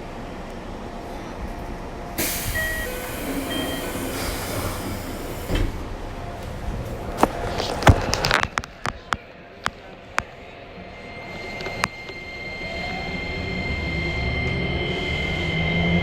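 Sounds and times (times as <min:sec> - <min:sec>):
hiss: 0:02.2 - 0:05.6
electric train inverter tones: 0:02.2 - 0:06.8, 0:10.7 - 0:16.0.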